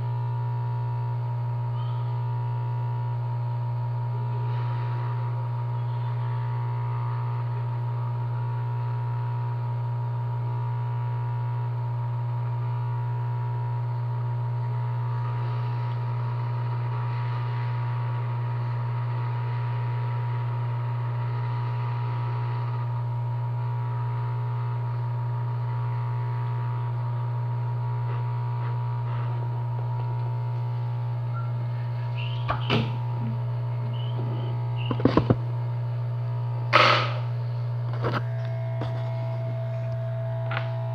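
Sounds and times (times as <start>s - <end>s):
low electrical hum: 0.0s - 40.9s
high whine: 14.5s - 40.9s.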